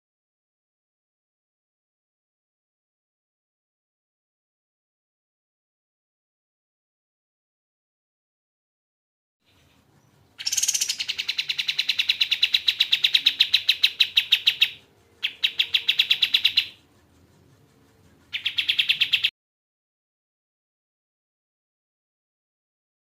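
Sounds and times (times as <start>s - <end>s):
songbird trilling: 10.4s - 16.8s, 18.3s - 19.3s.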